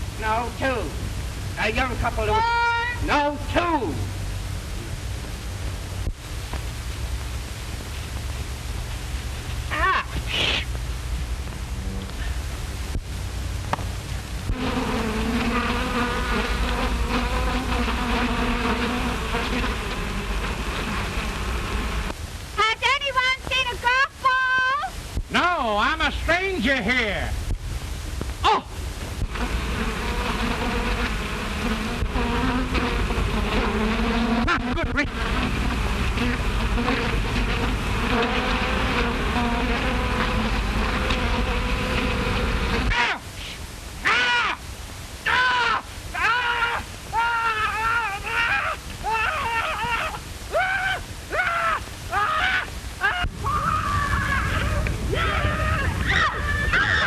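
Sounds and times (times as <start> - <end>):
low hum and hiss: 0.0 - 57.0
bees buzzing: 14.4 - 22.2, 29.2 - 43.0.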